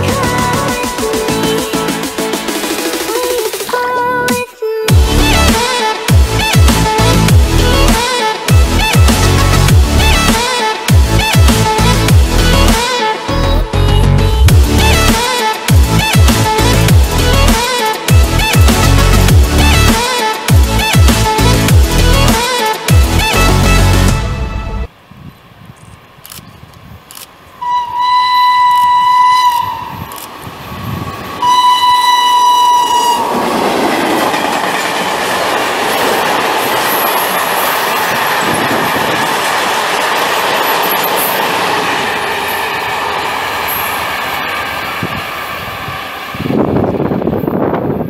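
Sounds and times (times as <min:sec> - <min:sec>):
locomotive horn blasts: 0:27.6 - 0:30.1, 0:31.4 - 0:33.3
freight train wheels rumbling: 0:28.6 - 0:48.0.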